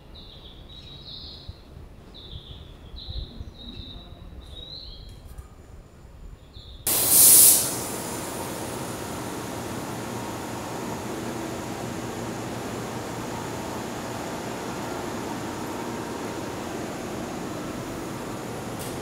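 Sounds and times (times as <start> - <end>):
loud hissing rushing noise: 6.9 - 19.0.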